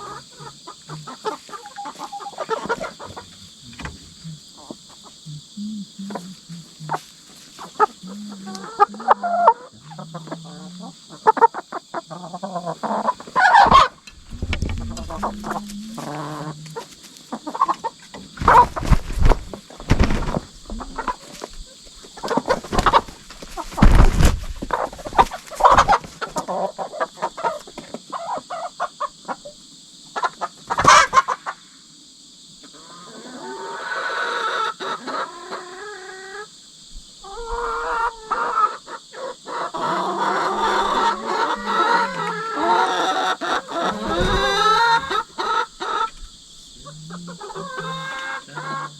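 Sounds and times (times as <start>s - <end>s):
hens squawking and clucking: 0.0s - 31.7s, 32.6s - 48.9s
insect trill: 0.0s - 48.9s
knocks and scrabbling: 13.6s - 16.1s, 18.2s - 21.6s, 22.5s - 26.1s.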